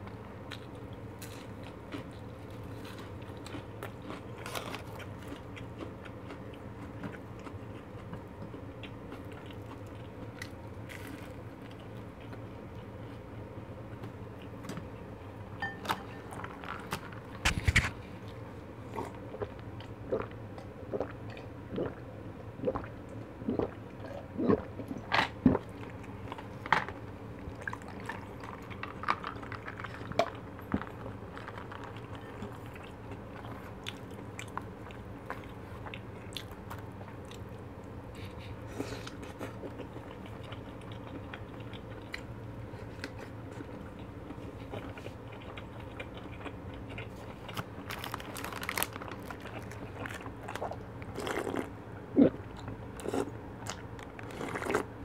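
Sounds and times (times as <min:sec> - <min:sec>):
person chewing food: 0:00.5 - 0:13.2, 0:15.6 - 0:22.0, 0:22.6 - 0:54.9.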